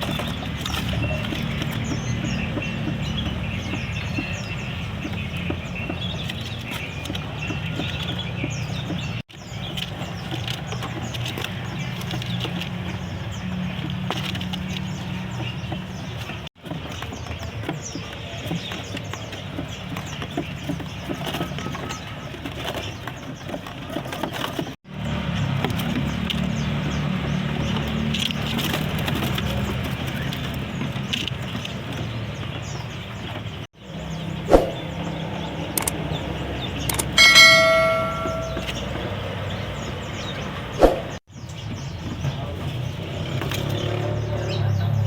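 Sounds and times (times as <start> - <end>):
small birds chirping: 0.0 - 45.0
traffic hum: 0.0 - 45.0
sharp clicks and taps: 36.9 - 37.3
sharp knocks: 36.9 - 38.8.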